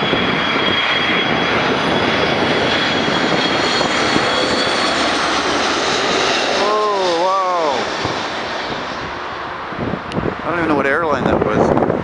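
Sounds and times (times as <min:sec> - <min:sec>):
high engine whine: 0:00.0 - 0:12.0
jet engines roaring: 0:00.0 - 0:12.0.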